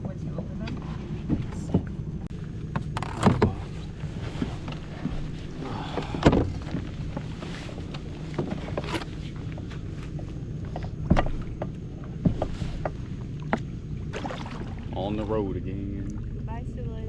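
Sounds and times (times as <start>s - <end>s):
steady low rumble: 0.0s - 17.0s
paddles knocking and splashing: 2.8s - 16.4s.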